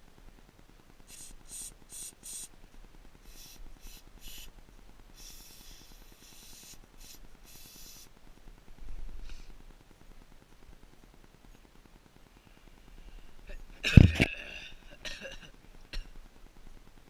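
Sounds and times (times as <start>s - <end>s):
aerosol spray hissing: 1.1s - 2.5s, 3.2s - 4.5s, 5.1s - 8.1s.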